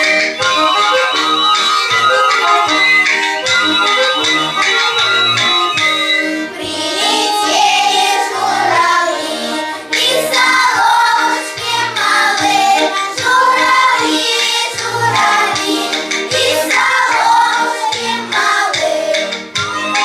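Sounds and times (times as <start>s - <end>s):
instrumental accompaniment: 0.0s - 20.0s
child singing: 6.6s - 19.2s.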